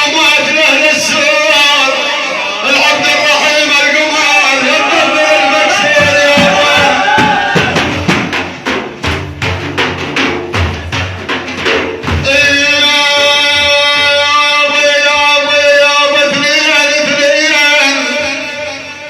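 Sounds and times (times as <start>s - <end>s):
voices: 0.0s - 8.1s
frame drums beaten: 4.6s - 15.5s.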